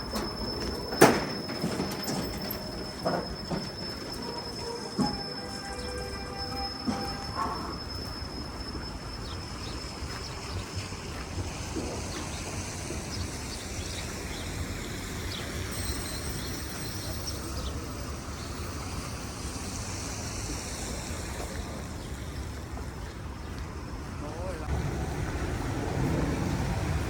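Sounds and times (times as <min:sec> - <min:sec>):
traffic rumble: 0:09.0 - 0:27.0.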